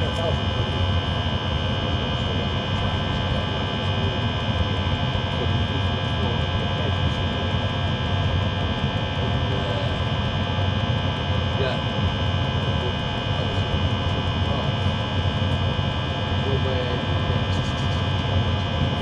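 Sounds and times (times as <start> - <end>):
diesel heater roaring: 0.0 - 19.0
high whine: 0.0 - 19.0.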